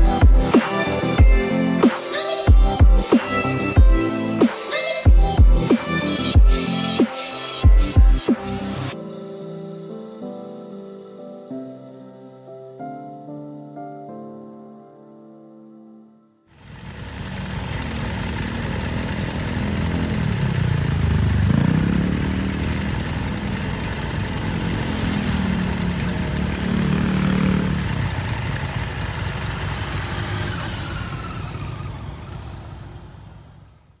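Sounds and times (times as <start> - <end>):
motorcycle engine accelerating: 16.6 - 34.0.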